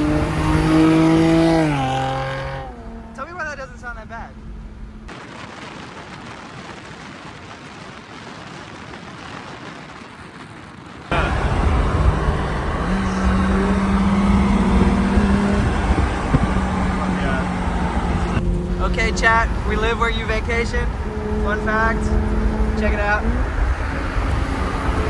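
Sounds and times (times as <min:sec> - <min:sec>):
car road and engine noise: 0:00.0 - 0:05.1, 0:10.6 - 0:25.0.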